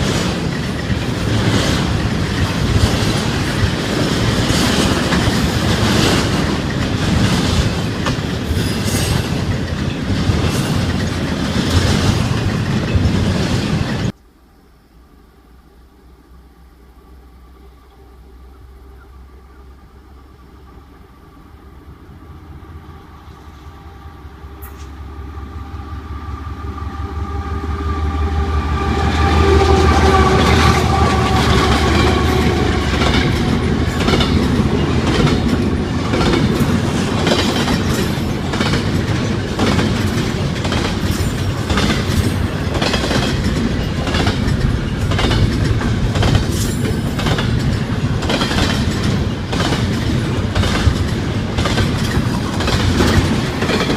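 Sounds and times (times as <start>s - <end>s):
train wheels clickety-clack: 0.0s - 14.2s, 28.9s - 53.9s
locomotive engine: 16.7s - 53.9s.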